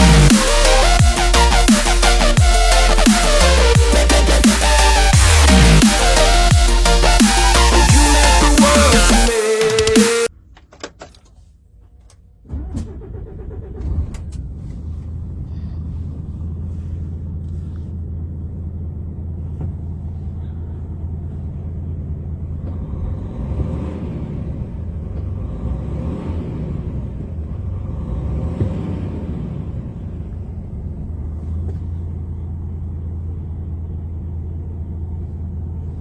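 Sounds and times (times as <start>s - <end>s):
diesel engine starting and idling: 0.0s - 10.3s, 11.3s - 36.0s
high whirring: 0.0s - 10.3s.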